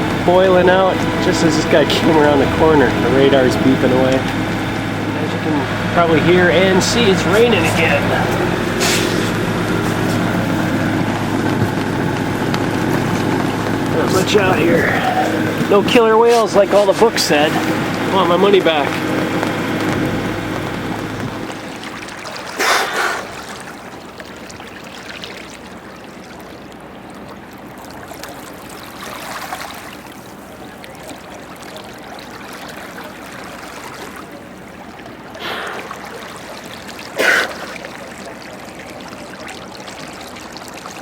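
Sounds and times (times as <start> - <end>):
water splashes: 0.0 - 41.0
water trickling and rushing: 0.0 - 41.0.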